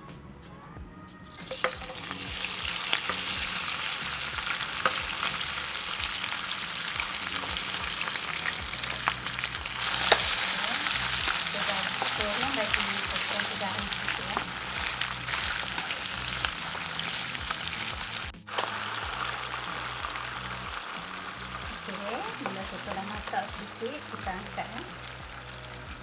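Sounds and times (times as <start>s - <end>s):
food sizzling in hot oil: 1.2s - 26.0s
sharp oil pops: 18.5s - 18.8s.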